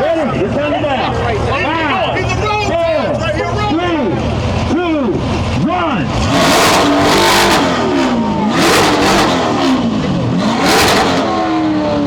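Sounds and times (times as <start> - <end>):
car engine revving hard: 4.6 - 12.0.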